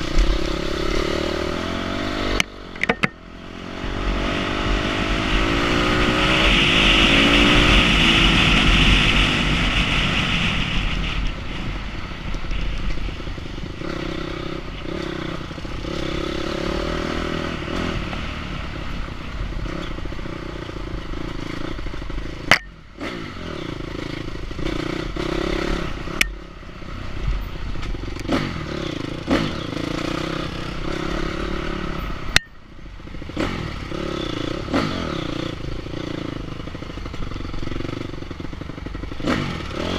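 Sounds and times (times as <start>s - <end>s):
motorcycle engine revving: 0.0s - 12.0s, 12.6s - 39.9s
clattering and sharp knocks: 2.8s - 3.2s.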